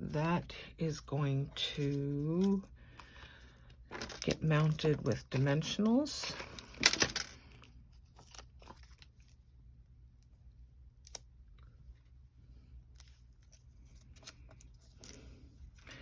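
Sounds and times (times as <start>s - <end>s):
faint paper rustling: 7.9s - 9.5s.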